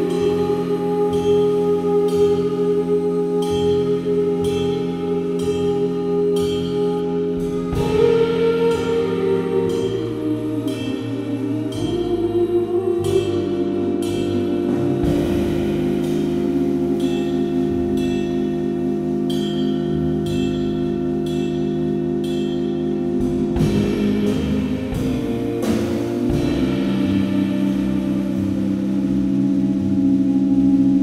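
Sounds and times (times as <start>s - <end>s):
ringing band chords: 0.0s - 31.0s
percussion hits: 14.8s - 29.3s.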